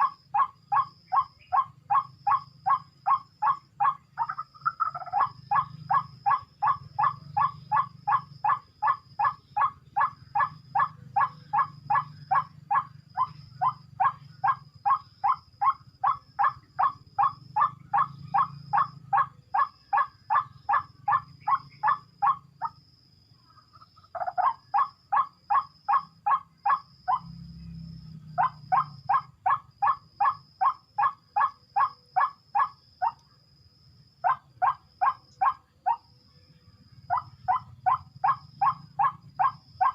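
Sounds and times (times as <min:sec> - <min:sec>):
bird harsh calls: 0:00.0 - 0:22.8.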